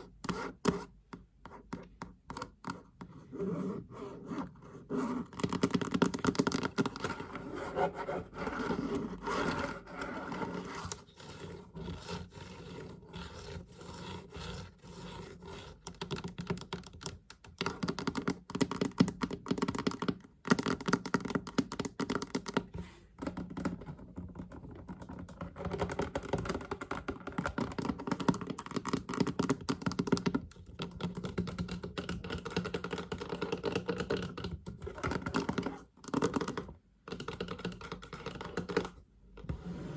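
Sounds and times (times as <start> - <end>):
fast tapping on a chest: 5.3 - 7.1, 16.0 - 38.9.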